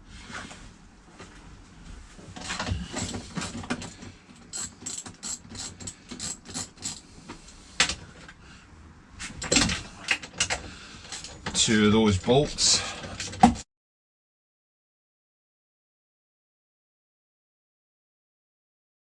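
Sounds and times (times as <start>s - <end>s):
ratchet wrench clicking: 4.4s - 7.0s.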